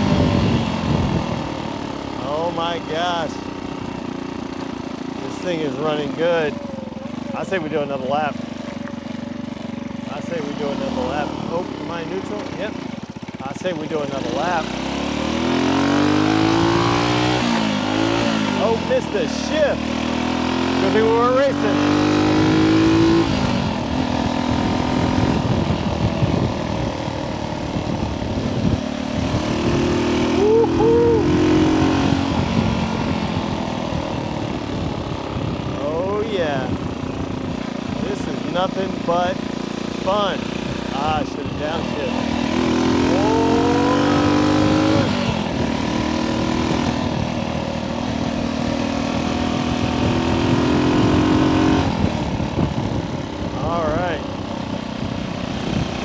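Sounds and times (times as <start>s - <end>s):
wind buffeting microphone: 0.0s - 2.0s, 22.1s - 56.0s
motorcycle engine running: 0.0s - 56.0s.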